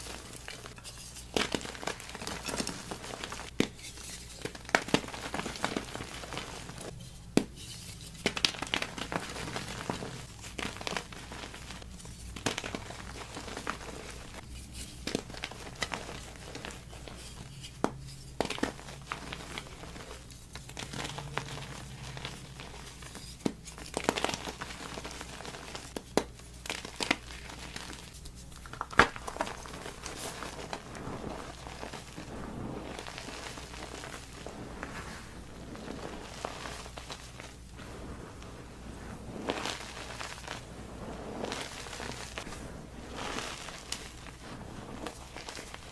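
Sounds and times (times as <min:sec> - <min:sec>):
chalk crumbling and crackling: 0:00.0 - 0:45.9.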